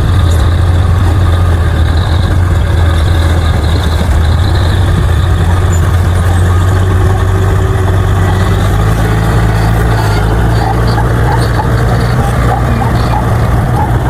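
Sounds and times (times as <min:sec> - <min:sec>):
bulldozer diesel engine drone: 0:00.0 - 0:14.0.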